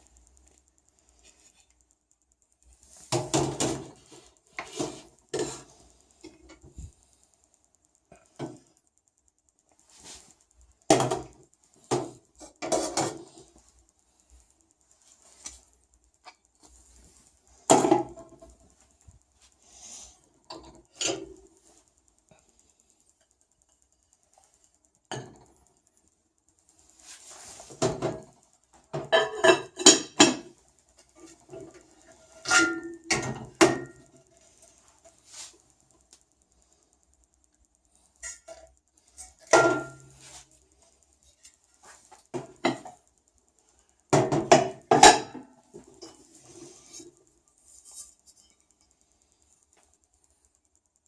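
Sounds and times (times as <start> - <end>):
dishes and cutlery clattering: 29.0 - 30.5.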